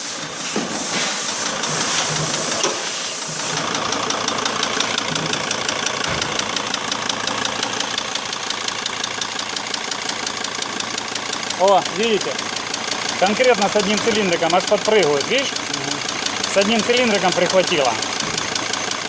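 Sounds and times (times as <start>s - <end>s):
hiss: 0.0s - 3.5s
diesel engine knocking: 1.4s - 19.0s.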